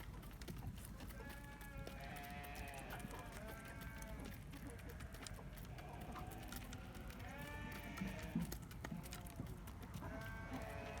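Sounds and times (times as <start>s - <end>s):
faint clicks and rustling: 0.0s - 11.0s
sheep bleating: 7.2s - 8.4s.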